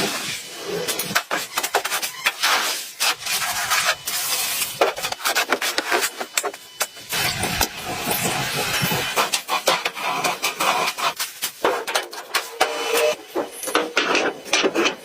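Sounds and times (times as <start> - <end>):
scraping and rasping: 0.1 - 15.0.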